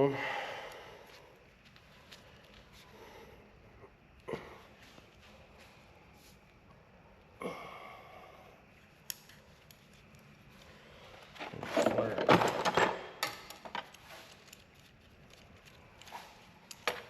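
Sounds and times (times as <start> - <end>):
sharp clicks of metal parts: 11.9 - 17.0.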